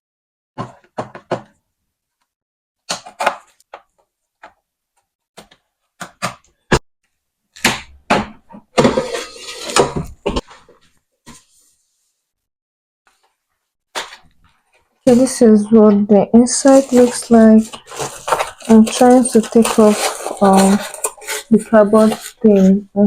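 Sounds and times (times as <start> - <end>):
plastic parts knocking and clicking: 0.6 - 1.6, 2.9 - 6.8
wrapping scraping and rustling: 16.4 - 22.8.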